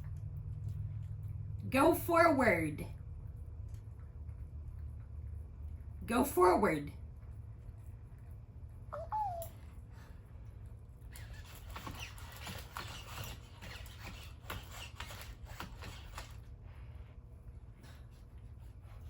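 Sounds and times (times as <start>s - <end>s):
robot dog electronic chirp: 9.0s - 9.4s.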